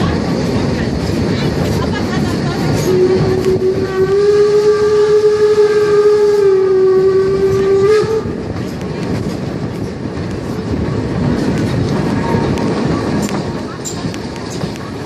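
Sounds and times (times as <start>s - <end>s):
train wheels rumbling on rails: 0.0s - 15.0s
train whistle: 2.8s - 8.4s.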